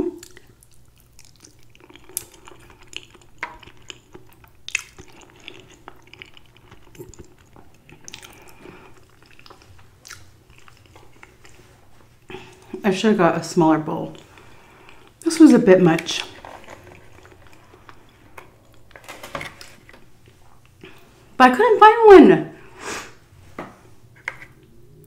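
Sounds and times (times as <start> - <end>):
person chewing food: 0.0 - 12.8, 14.1 - 15.2, 16.3 - 21.4.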